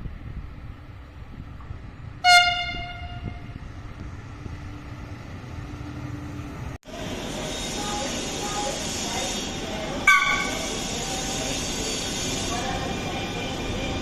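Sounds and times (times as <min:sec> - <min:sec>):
train running past rumbling: 0:00.0 - 0:14.0
train horn blast: 0:02.2 - 0:03.6, 0:10.1 - 0:10.6.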